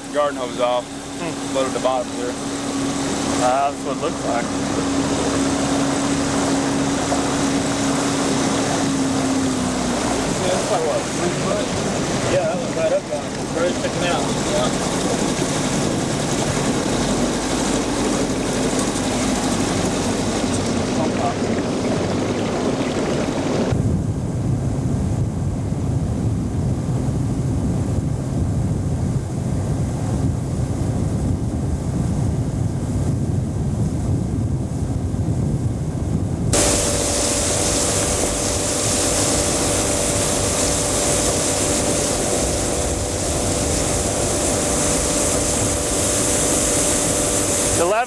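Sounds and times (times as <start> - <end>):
hissy motor hum: 0.0 - 23.7, 36.6 - 47.9
boat motor running: 0.0 - 48.0
wind on microphone: 0.0 - 48.0.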